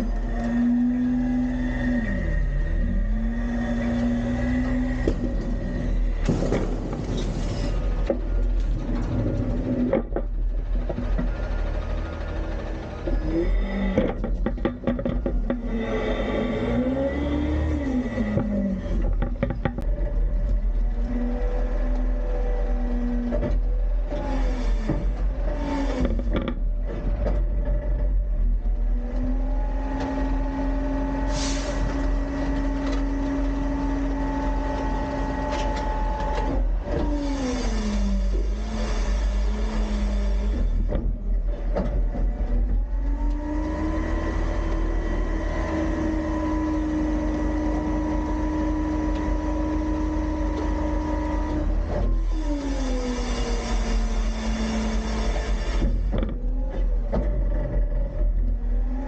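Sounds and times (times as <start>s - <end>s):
garbage truck engine revving: 0.0s - 59.0s
clattering: 13.0s - 15.9s.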